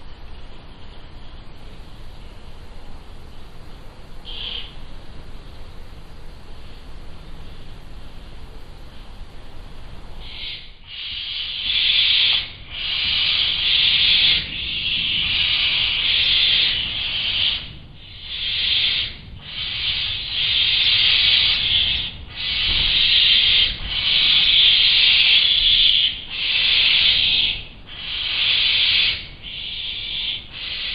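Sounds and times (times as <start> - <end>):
owl chicks hissing: 4.3 - 4.8, 10.2 - 30.9.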